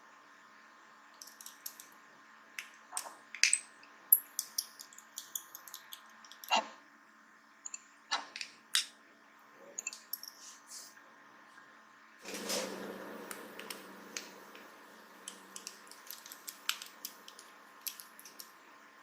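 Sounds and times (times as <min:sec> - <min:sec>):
small screwdriver clicking on metal: 0:04.4 - 0:06.6, 0:15.3 - 0:18.6.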